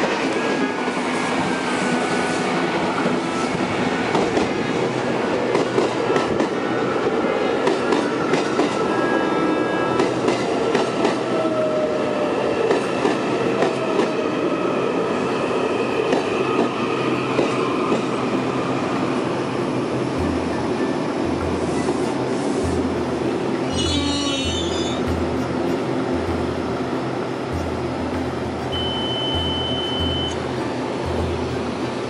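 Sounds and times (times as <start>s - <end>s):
train wheels rumbling and clicking: 0.0s - 8.9s, 10.0s - 32.0s
thin high tones: 28.6s - 31.3s.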